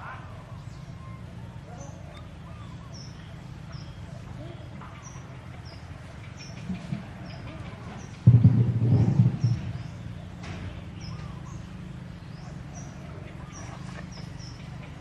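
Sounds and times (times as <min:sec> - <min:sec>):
small birds chirping: 0:00.0 - 0:15.0
wind buffeting microphone: 0:06.5 - 0:10.2.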